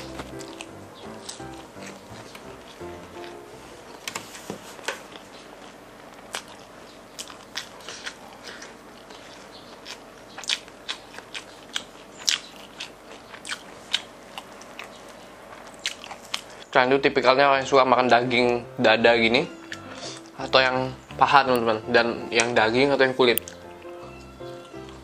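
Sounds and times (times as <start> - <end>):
crunching fried chicken: 0.0 - 3.4, 4.8 - 16.7, 23.3 - 25.0.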